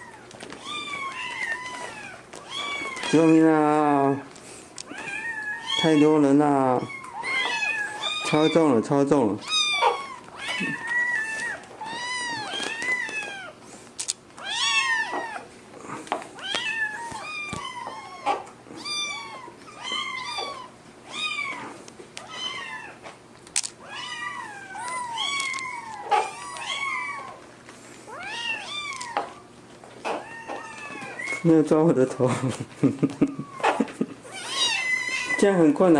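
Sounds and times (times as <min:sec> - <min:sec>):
kittens meowing: 0:00.0 - 0:13.6, 0:14.4 - 0:23.2, 0:23.8 - 0:35.9.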